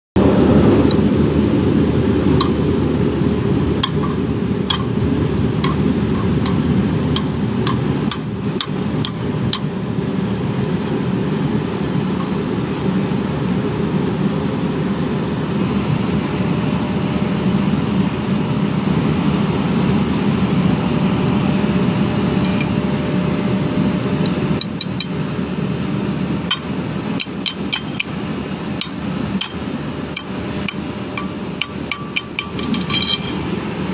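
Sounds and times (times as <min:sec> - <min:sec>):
loud machine running: 0:00.2 - 0:33.9
light metallic clinks and taps: 0:30.7 - 0:33.4.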